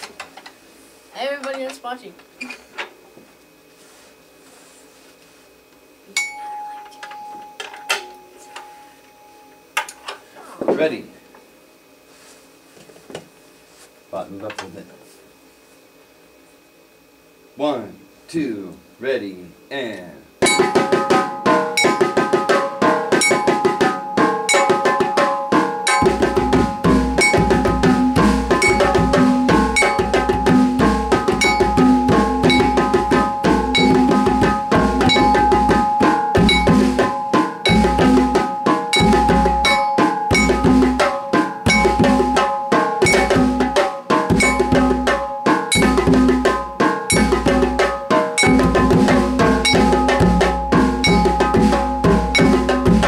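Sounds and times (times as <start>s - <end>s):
sustained held tones: 6.1s - 9.8s, 20.4s - 53.0s
rhythmic percussion: 20.4s - 53.0s.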